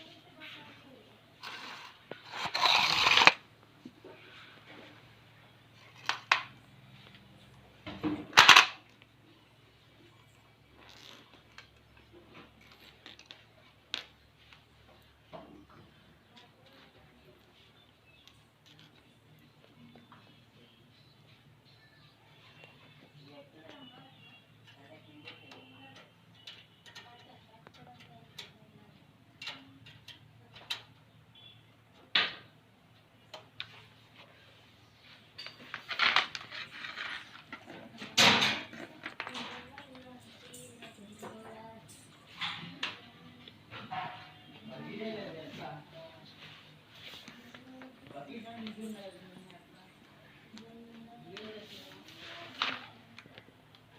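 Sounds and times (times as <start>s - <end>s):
hard objects clicking: 1.4s - 3.4s.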